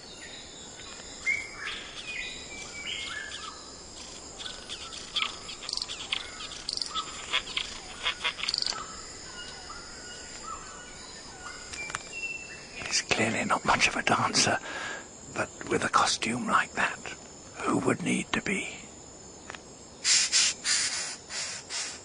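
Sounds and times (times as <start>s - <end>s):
birds calling: 0.0s - 16.6s
high insect buzz: 0.0s - 22.0s.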